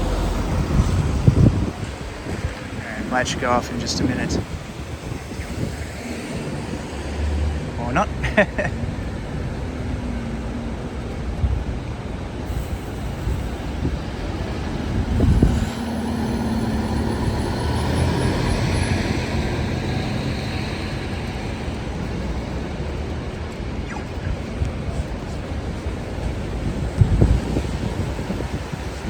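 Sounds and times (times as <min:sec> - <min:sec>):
loud vehicle passing: 0:00.0 - 0:11.0, 0:12.9 - 0:22.8
city street traffic: 0:00.0 - 0:29.0.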